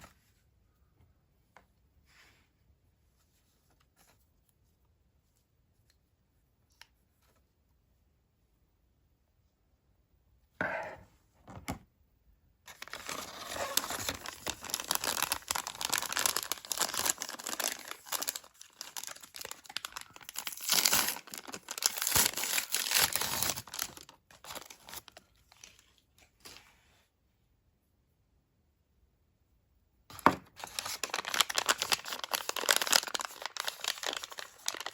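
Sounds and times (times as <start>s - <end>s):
packaging crinkling and tearing: 12.7s - 26.6s, 30.5s - 34.9s.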